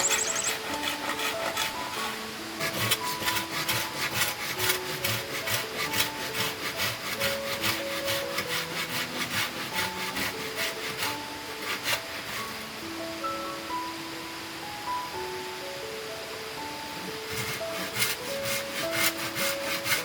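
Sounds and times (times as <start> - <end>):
hand saw cutting wood: 0.0 - 12.6, 17.2 - 20.0.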